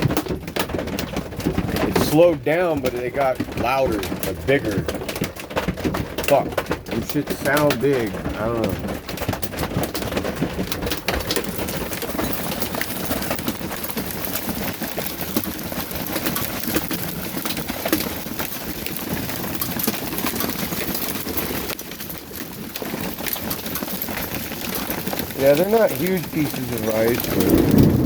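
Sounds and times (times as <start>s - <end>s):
hailstones pelting down: 0.0s - 28.0s
rain-like hiss: 23.4s - 28.0s.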